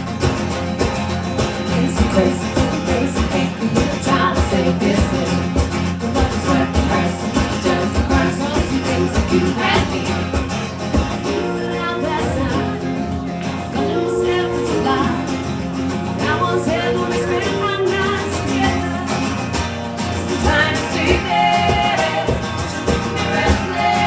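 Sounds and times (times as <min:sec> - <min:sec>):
live band playing: 0:00.0 - 0:24.0
person singing: 0:01.7 - 0:10.3, 0:11.2 - 0:13.0, 0:13.7 - 0:15.4, 0:16.2 - 0:19.2.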